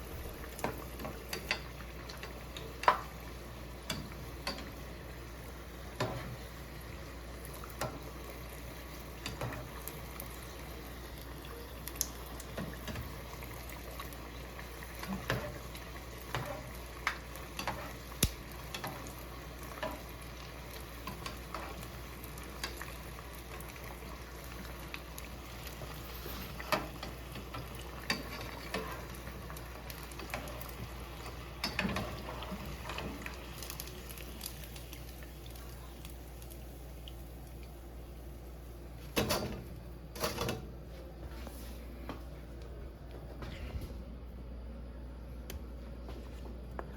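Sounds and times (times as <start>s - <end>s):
liquid bubbling and sizzling: 0.0s - 46.9s
sharp pops and clicks: 18.2s - 18.5s.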